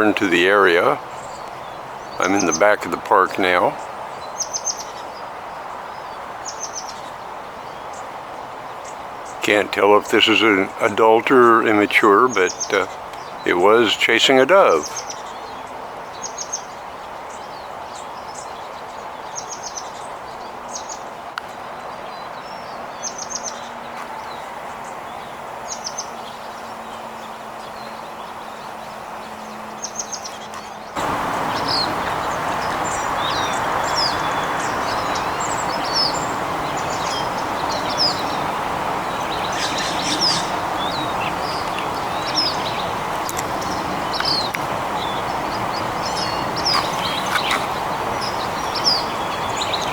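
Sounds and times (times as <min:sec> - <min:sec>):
outdoor background hiss: 0:00.0 - 0:49.9
songbirds chirping: 0:00.0 - 0:49.9.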